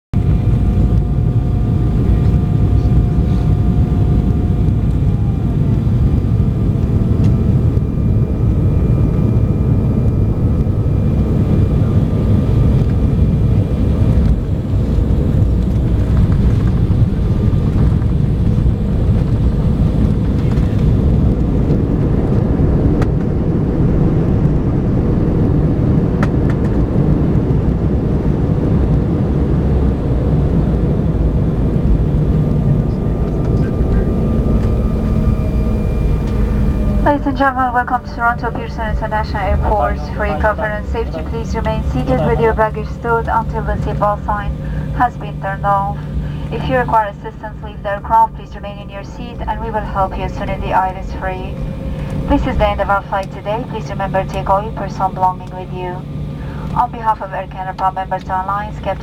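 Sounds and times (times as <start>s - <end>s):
jet engine and airflow rumble: 0.1s - 59.0s
faint whining tones: 28.8s - 59.0s.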